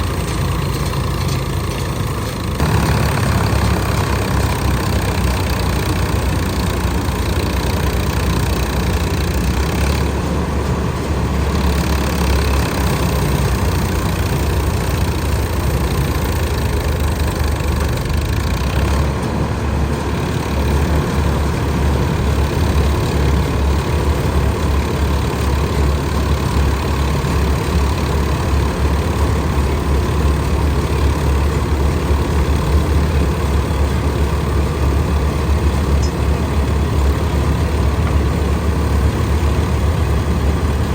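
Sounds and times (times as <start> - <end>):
combine harvester engine drone: 0.0 - 40.9
mechanical din: 2.6 - 5.8.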